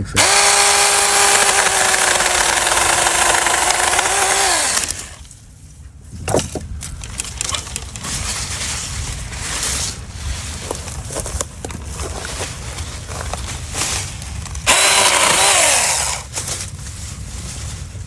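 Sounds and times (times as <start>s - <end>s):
mini chainsaw motor whining: 0.2s - 5.2s, 14.6s - 16.3s
rustling: 0.9s - 18.0s.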